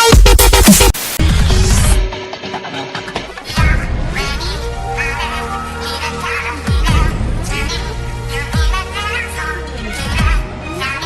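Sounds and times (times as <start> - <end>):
electronic music with heavy bass: 0.0 - 2.2.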